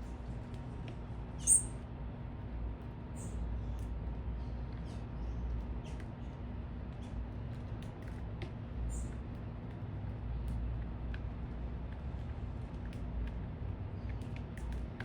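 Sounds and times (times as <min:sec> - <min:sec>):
low rumble of city traffic: 0:00.0 - 0:15.0
small birds chirping: 0:01.4 - 0:01.8, 0:03.2 - 0:06.4, 0:08.9 - 0:09.2.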